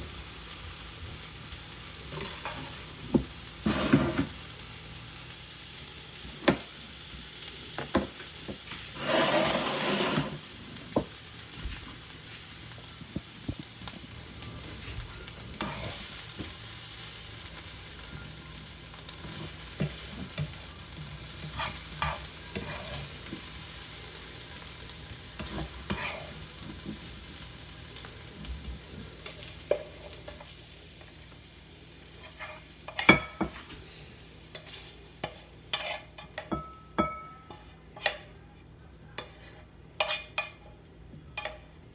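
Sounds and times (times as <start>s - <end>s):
rice sizzling in a pan: 0.0s - 41.9s
spatula scraping a pan: 2.0s - 4.4s, 8.6s - 11.0s, 15.4s - 16.2s, 19.2s - 23.6s, 25.2s - 27.3s, 32.1s - 38.4s, 39.2s - 41.7s.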